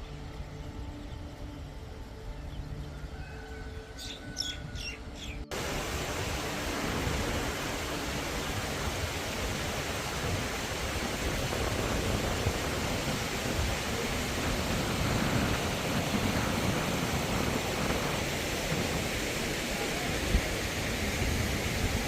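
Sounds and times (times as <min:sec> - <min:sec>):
bird chirps: 0:02.3 - 0:05.5
steady rushing noise: 0:03.8 - 0:22.0.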